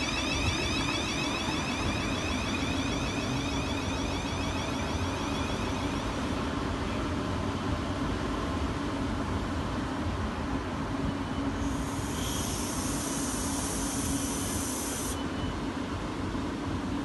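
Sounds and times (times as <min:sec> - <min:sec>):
steady high hiss: 0:00.0 - 0:07.0, 0:11.6 - 0:15.2
electric train running: 0:00.0 - 0:08.3, 0:11.6 - 0:15.2.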